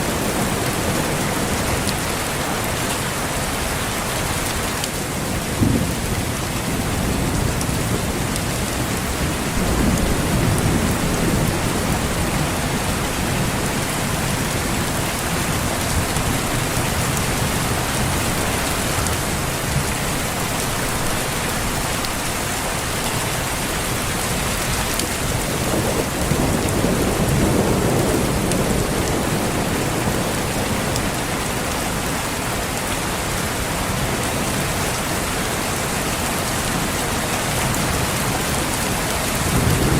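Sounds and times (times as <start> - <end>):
heavy rain falling: 0.0 - 39.9
low thunder rolls: 5.2 - 21.2, 24.6 - 31.1, 39.4 - 39.9.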